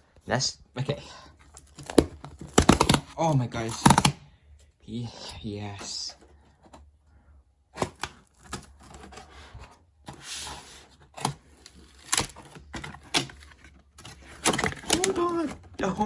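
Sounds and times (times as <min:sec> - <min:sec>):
cardboard packaging tearing: 0:01.4 - 0:04.3, 0:07.7 - 0:09.5, 0:10.1 - 0:16.0.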